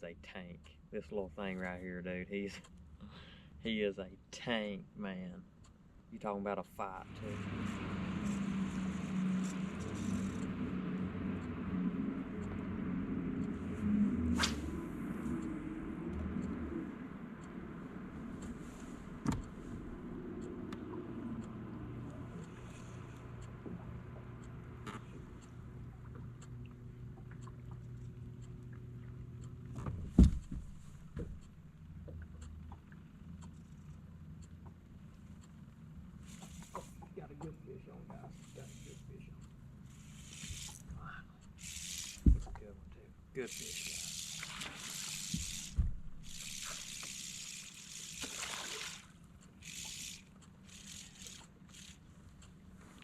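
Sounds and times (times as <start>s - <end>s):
boat motor humming: 5.4s - 53.0s
small ticks: 8.2s - 12.8s, 18.2s - 42.7s, 43.4s - 53.0s
low thumps: 42.2s - 42.7s, 45.4s - 46.2s
water splashing and dribbling: 43.9s - 49.2s.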